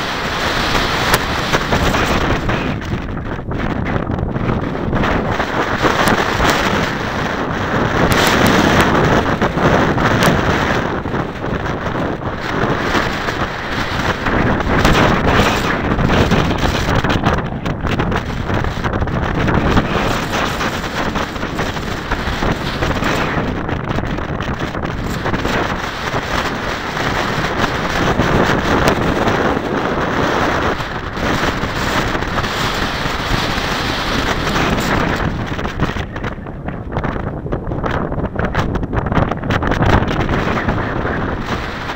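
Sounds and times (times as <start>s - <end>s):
sharp crackles: 0.0s - 41.9s
strong wind buffeting microphone: 0.0s - 41.9s.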